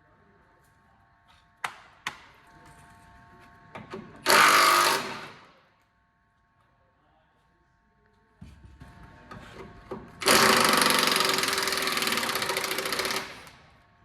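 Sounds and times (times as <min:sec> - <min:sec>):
power tool burst: 0:04.2 - 0:05.4, 0:10.2 - 0:13.6.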